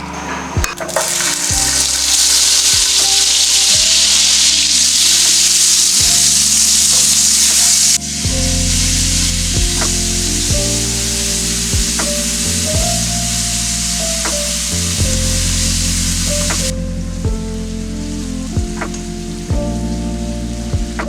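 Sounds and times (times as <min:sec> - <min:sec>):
food sizzling in a pan: 0:00.9 - 0:16.7.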